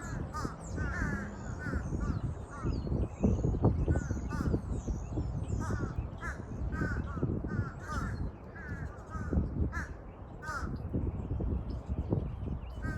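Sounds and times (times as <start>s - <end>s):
crows calling: 0.0s - 2.8s, 3.9s - 4.6s, 5.6s - 10.8s.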